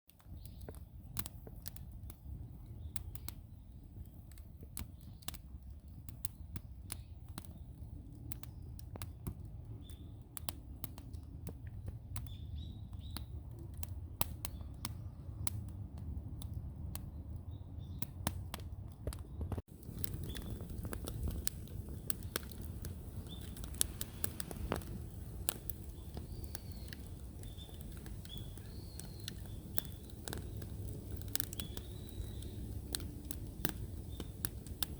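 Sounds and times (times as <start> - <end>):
wood fire crackling and popping: 0.1 - 34.9
bird chirps: 26.0 - 30.6, 31.5 - 32.7.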